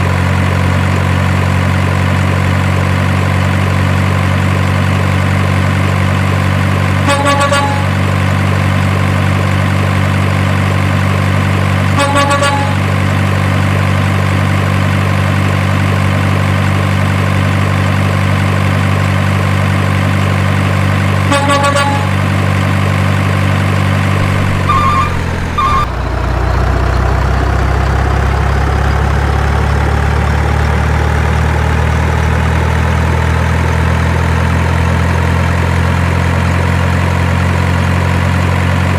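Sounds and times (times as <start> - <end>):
truck engine running: 0.0 - 38.9
short horn honks: 7.1 - 8.0, 12.0 - 12.9, 21.3 - 22.2, 24.2 - 25.9
quick higher beeps: 24.2 - 25.9.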